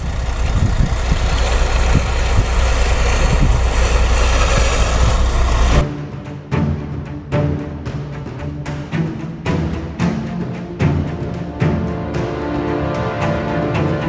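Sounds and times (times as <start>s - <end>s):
heavy diesel engine running: 0.0s - 5.8s
music: 5.7s - 14.0s.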